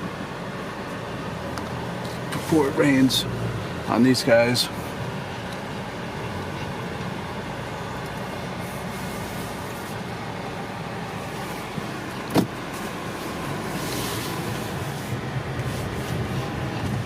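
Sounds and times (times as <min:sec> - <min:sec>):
car engine hum from inside cabin: 0:00.0 - 0:17.0.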